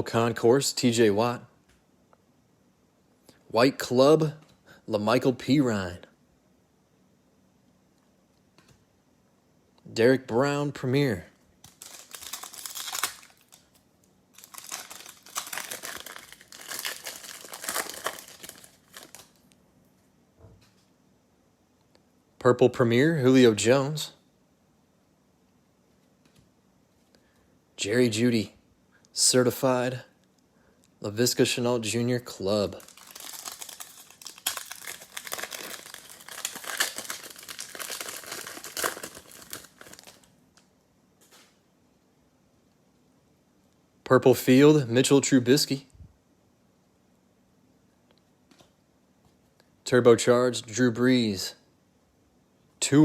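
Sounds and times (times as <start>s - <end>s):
foil wrapper crinkling and tearing: 11.6s - 19.5s, 32.7s - 40.3s.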